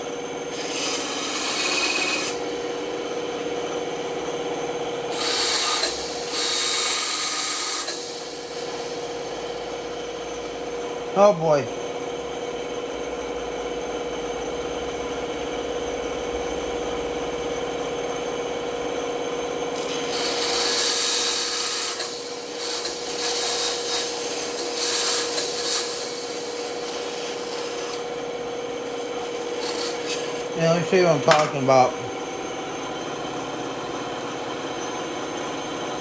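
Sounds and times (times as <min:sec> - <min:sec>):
band saw humming: 0:00.0 - 0:11.7, 0:19.7 - 0:36.0
saw blade cutting wood: 0:00.5 - 0:02.7, 0:05.1 - 0:08.8, 0:19.8 - 0:28.2, 0:28.8 - 0:32.0.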